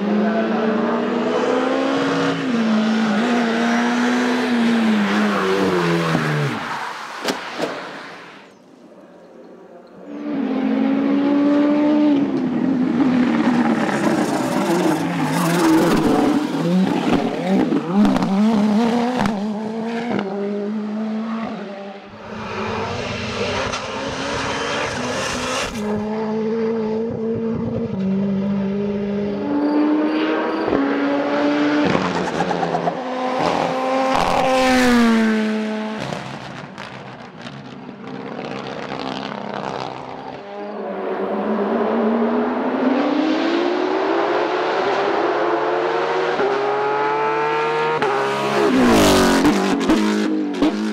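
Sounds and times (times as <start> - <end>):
race car engines revving: 0.0 - 50.9.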